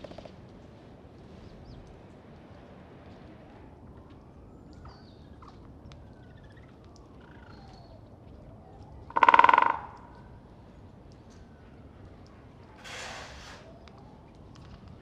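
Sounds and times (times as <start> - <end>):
woodpecker drumming on wood: 9.1 - 10.2.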